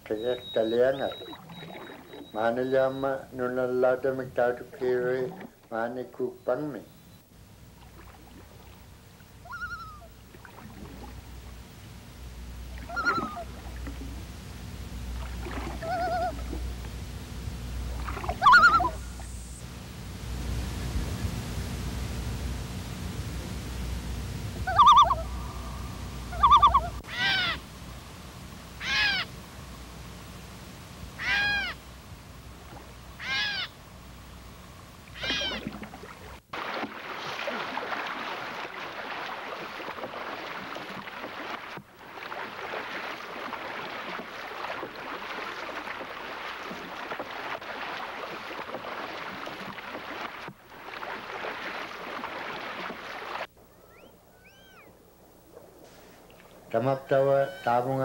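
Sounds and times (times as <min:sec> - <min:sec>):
bird calling: 0:00.0 - 0:03.3, 0:09.4 - 0:10.2, 0:12.8 - 0:14.2, 0:15.5 - 0:16.6, 0:18.0 - 0:19.6, 0:24.6 - 0:27.6, 0:28.7 - 0:29.3, 0:31.2 - 0:31.8, 0:33.2 - 0:33.8, 0:35.0 - 0:35.8, 0:53.4 - 0:55.0, 0:57.2 - 0:57.9
wind: 0:00.0 - 0:58.0
river water rushing: 0:36.2 - 0:53.5.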